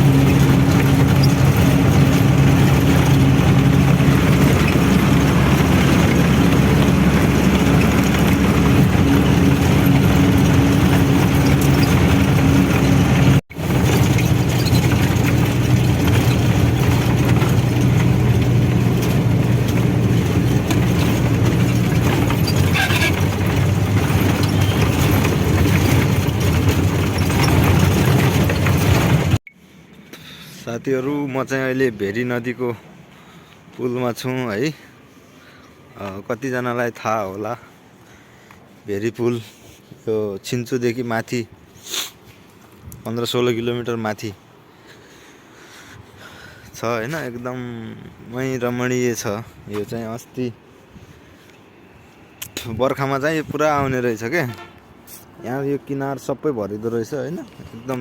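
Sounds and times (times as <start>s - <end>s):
truck engine running: 0.0s - 29.4s
road noise: 0.0s - 58.0s.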